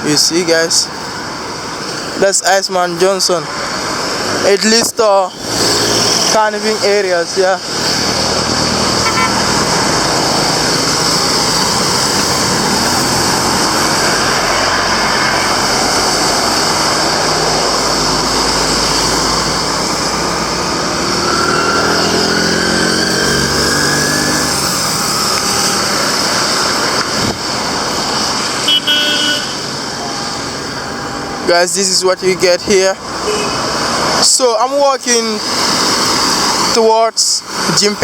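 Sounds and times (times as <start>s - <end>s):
road traffic passing: 0.0s - 38.0s
vehicle engine speeding past: 7.7s - 28.6s
car horn toot: 9.0s - 9.5s, 28.6s - 29.7s, 33.2s - 33.7s.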